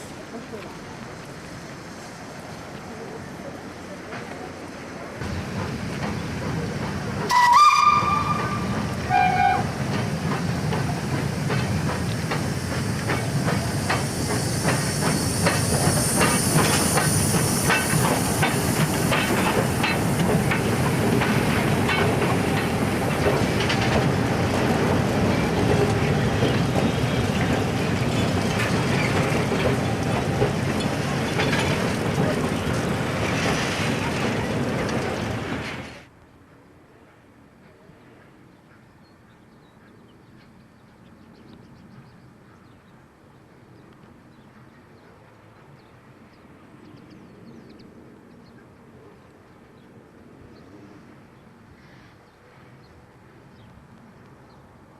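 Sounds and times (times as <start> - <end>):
rhythmic locomotive beats: 5.2 - 35.9
steam hissing: 5.2 - 36.0
steam locomotive whistle: 7.3 - 9.8.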